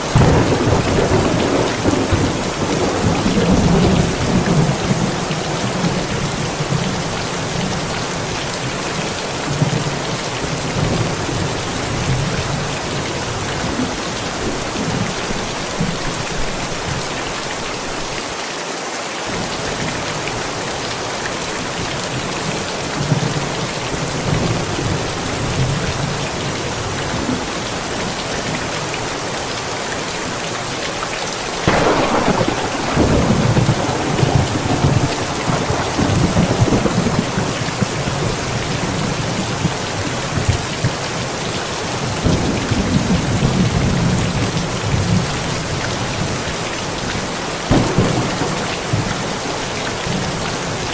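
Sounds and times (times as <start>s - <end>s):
steady rain: 0.0s - 50.9s
thunder rumbling: 0.1s - 6.8s, 31.6s - 39.7s, 47.7s - 50.9s.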